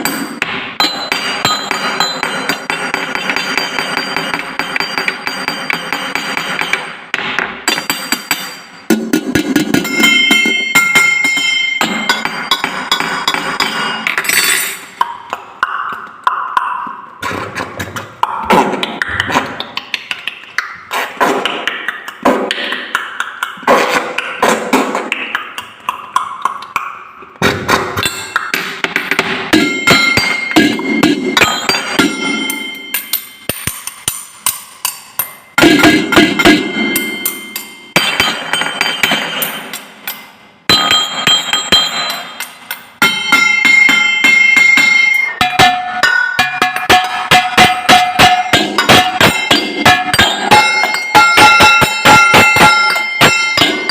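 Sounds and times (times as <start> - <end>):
drinking glasses struck in a tune: 0.0 - 7.0, 7.7 - 15.2, 29.5 - 53.9.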